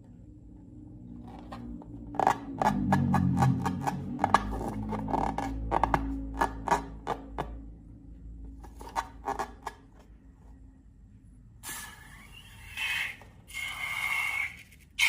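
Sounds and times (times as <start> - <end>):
slime scraping and rubbing: 12.1 - 15.0.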